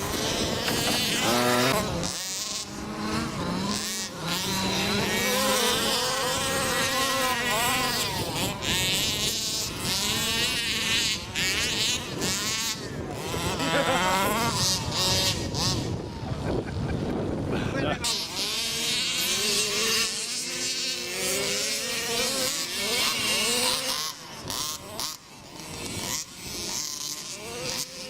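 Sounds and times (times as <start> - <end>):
off-road vehicle engines revving: 0.0 - 28.0.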